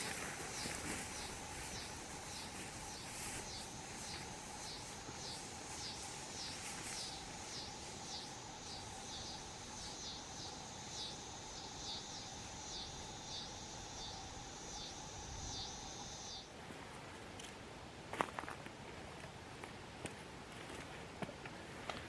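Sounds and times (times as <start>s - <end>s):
crickets chirping: 0.0s - 16.5s.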